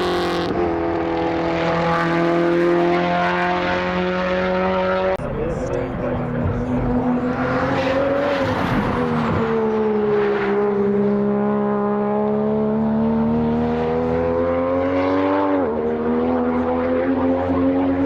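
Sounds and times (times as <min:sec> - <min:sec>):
race car engine revving: 0:00.0 - 0:18.0.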